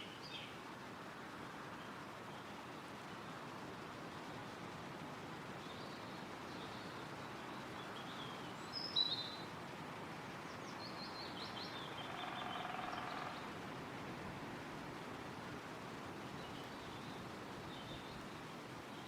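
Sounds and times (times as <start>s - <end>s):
wind in the trees: 0.0s - 19.0s
birds chirping: 10.4s - 13.6s.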